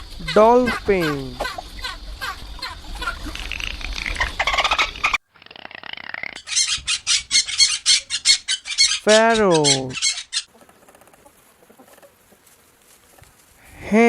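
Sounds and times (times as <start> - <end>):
dolphin chirping bursts: 0.0 - 5.2, 5.8 - 10.5.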